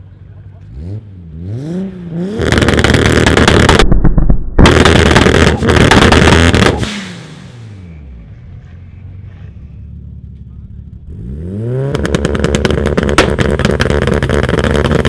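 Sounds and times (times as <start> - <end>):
car engine revving: 0.1 - 3.9, 4.6 - 15.0
exhaust crackling pops: 2.4 - 7.8, 11.9 - 15.0.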